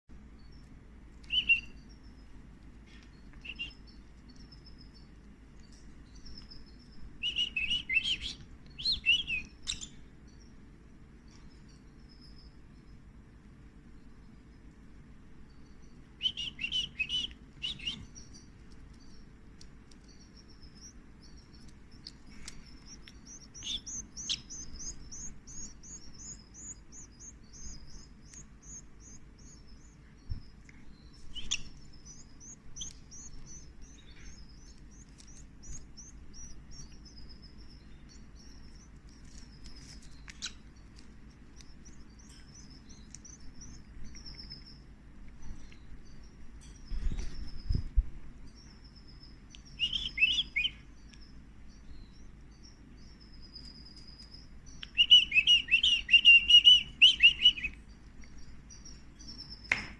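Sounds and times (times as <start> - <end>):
chicks cheeping: 0.2 - 59.9
soft clicks: 38.9 - 45.9.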